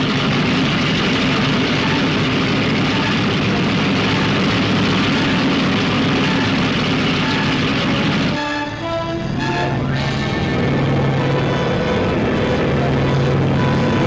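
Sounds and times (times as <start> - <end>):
aircraft piston engines droning: 0.0 - 14.0.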